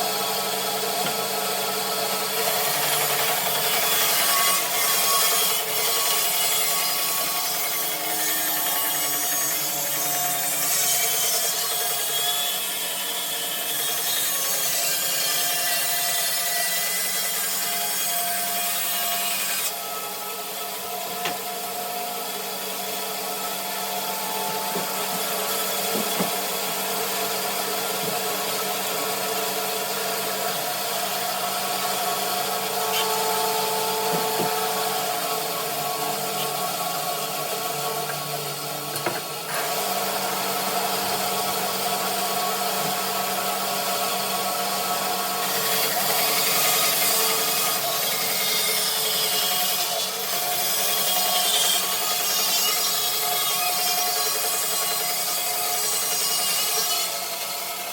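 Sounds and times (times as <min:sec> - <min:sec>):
saw blade rasping through wood: 0:00.0 - 0:44.1
bandsaw motor hum: 0:17.2 - 0:50.7.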